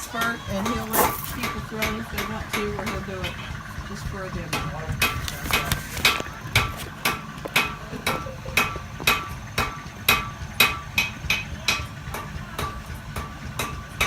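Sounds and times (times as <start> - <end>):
hammer striking metal on anvil: 0.2 - 3.4, 6.6 - 14.0.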